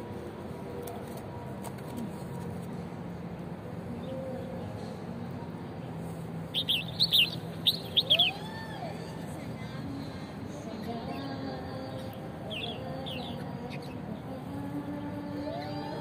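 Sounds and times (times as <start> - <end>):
small songbirds chirping: 6.5 - 8.4, 11.1 - 15.1.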